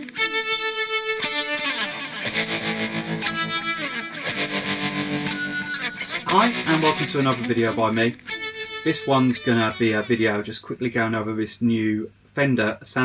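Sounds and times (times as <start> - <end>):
overdriven electric guitar: 0.0 - 10.2.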